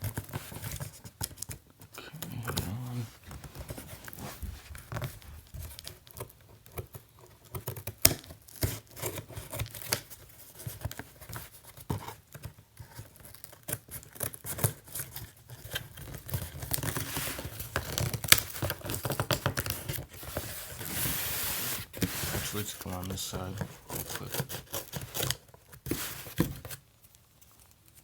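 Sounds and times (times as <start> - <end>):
packaging rustling and tearing: 12.8 - 28.0
cardboard box being cut: 19.6 - 26.7.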